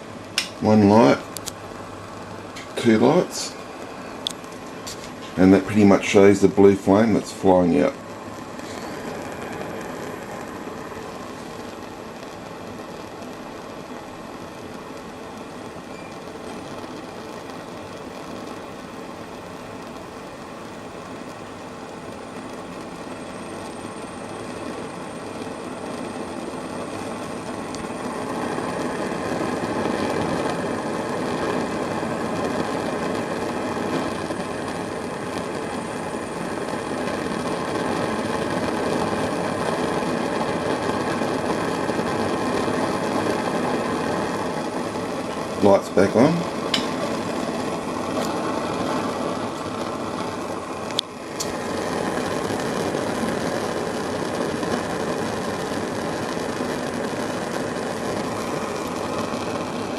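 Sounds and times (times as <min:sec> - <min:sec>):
spirit burner rushing flame: 0:00.0 - 0:59.9.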